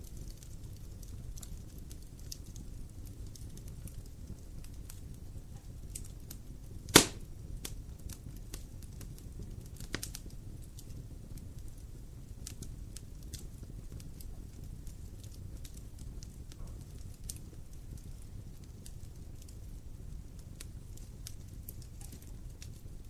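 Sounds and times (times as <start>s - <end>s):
wood fire crackling: 0.0s - 23.0s
loud sharp pop: 6.9s - 7.3s.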